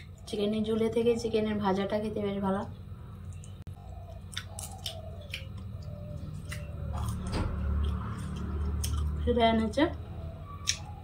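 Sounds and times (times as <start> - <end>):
person chewing fried chicken: 3.3 - 9.2.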